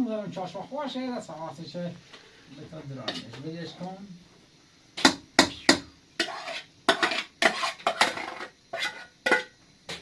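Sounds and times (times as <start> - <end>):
utensil scraping in pot: 6.2 - 9.5.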